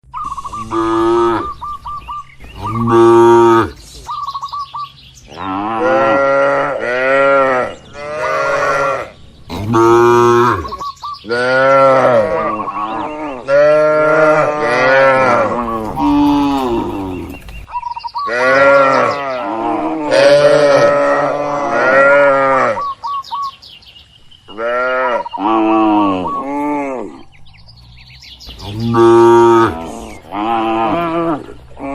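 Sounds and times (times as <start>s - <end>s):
cattle mooing: 0.5s - 1.6s, 2.6s - 3.8s, 5.3s - 17.4s, 18.3s - 22.9s, 28.6s - 31.9s.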